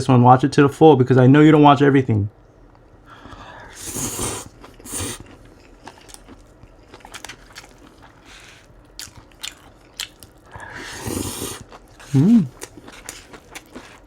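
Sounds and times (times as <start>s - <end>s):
chewing with crunches: 3.8s - 14.0s.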